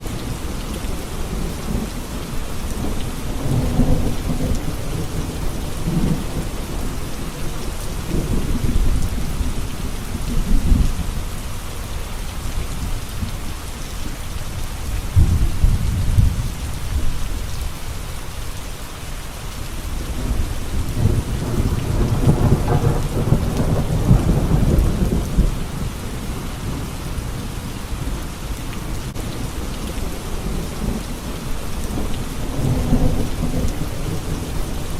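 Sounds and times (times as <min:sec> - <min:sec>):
steady rain: 0:00.0 - 0:34.9
rolling thunder: 0:02.7 - 0:11.2, 0:14.8 - 0:17.6, 0:20.0 - 0:28.3, 0:29.1 - 0:34.9.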